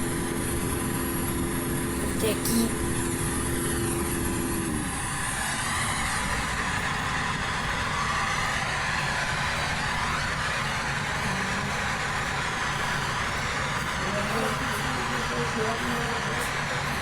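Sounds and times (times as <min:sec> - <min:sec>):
jet engines and rushing air: 0:00.0 - 0:17.0.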